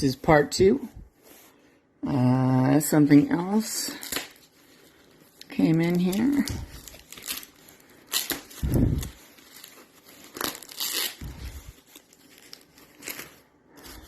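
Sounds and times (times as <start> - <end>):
packaging tearing and crumpling: 3.8 - 14.0.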